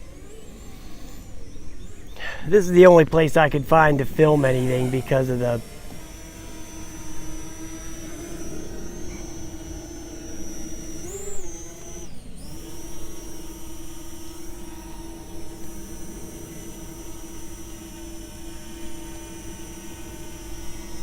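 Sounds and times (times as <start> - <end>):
drone propellers humming: 0.0 - 21.0.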